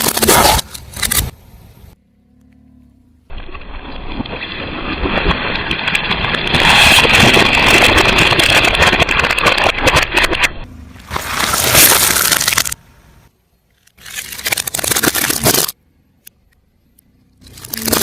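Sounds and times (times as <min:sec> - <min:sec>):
car tyre crushing crunchy objects: 0:03.4 - 0:12.8.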